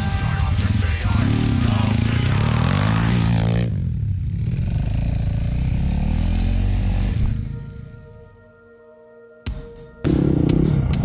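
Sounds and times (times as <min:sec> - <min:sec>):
motorcycle engine running: 0:00.0 - 0:07.9
sustained musical tones: 0:06.5 - 0:11.0.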